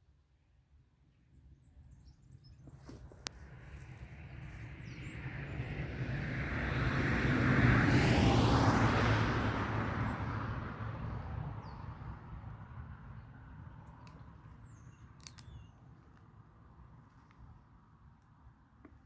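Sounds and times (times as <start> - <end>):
vehicle passing on highway: 3.4 - 14.7.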